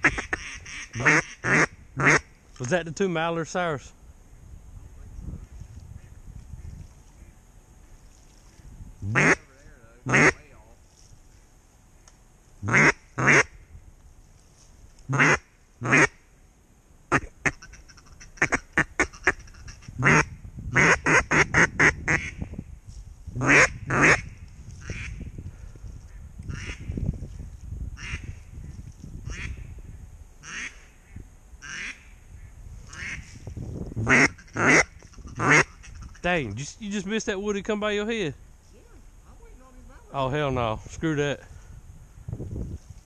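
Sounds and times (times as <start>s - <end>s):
duck quacking: 0.0s - 2.2s, 9.0s - 9.5s, 10.1s - 10.4s, 12.6s - 13.5s, 15.1s - 16.2s, 17.1s - 22.4s, 23.4s - 24.2s, 26.5s - 26.8s, 30.4s - 30.8s, 31.6s - 32.0s, 32.9s - 33.3s, 34.0s - 36.4s.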